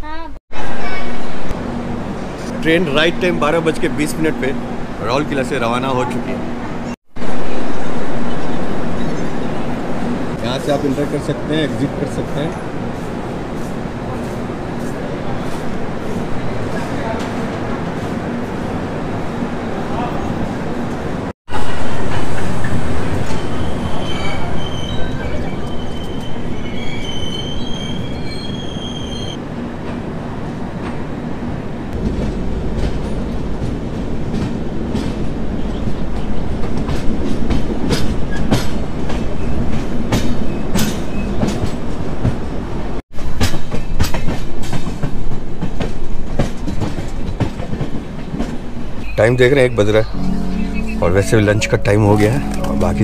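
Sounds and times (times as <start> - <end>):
train rumbling: 0.0 - 53.0
high-pitched wheel squeal: 23.3 - 29.4.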